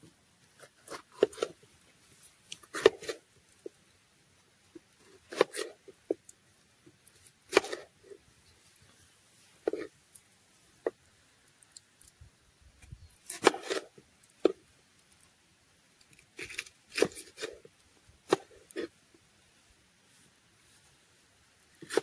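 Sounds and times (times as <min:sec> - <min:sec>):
knife cutting food on board: 0:00.8 - 0:01.6, 0:02.7 - 0:03.2, 0:05.3 - 0:05.7, 0:07.5 - 0:07.9, 0:13.3 - 0:14.6.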